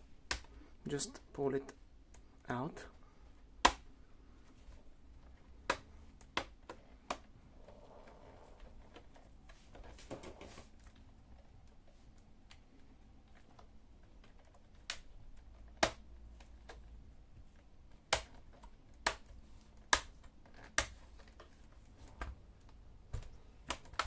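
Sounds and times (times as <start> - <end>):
plastic clips snapping loose: 13.4 - 16.8, 17.9 - 21.6, 22.2 - 24.0.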